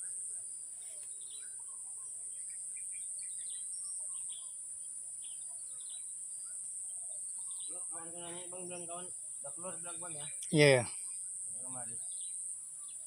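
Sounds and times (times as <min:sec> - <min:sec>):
high-pitched insect drone: 0:07.6 - 0:13.0.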